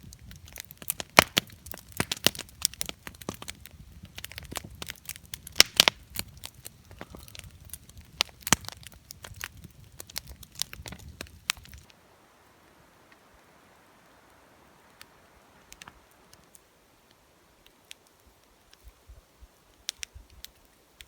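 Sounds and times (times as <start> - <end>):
campfire crackling and popping: 0.0 - 21.0
faint hiss: 11.3 - 21.0.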